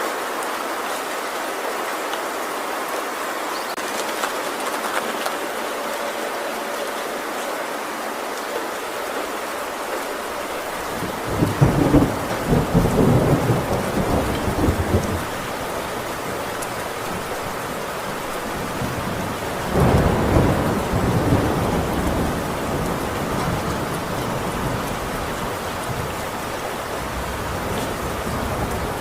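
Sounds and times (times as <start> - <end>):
heavy rain on a tin roof: 0.0 - 29.0
thunder rumbling: 10.2 - 29.0.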